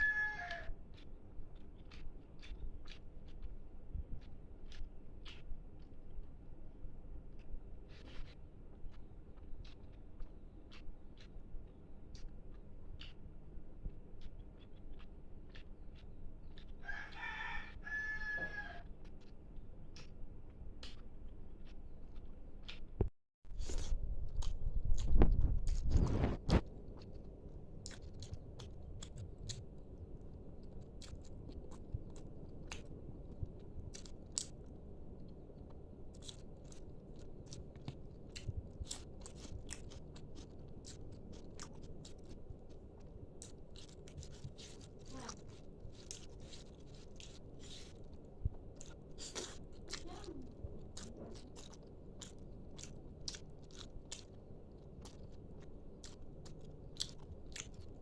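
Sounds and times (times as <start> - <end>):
person chewing crunchy fried food: 0.0 - 22.9, 23.5 - 58.0.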